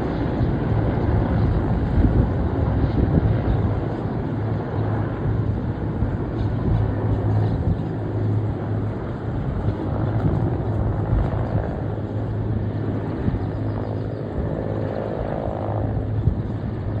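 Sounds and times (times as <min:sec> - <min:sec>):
helicopter droning overhead: 0:00.0 - 0:17.0.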